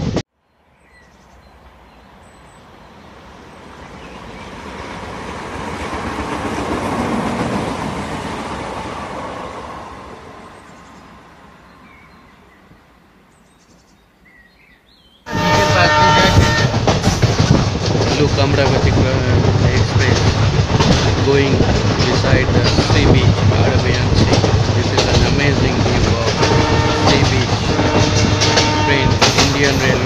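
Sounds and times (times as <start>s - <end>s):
train running rumble: 3.7s - 9.8s, 15.3s - 30.0s.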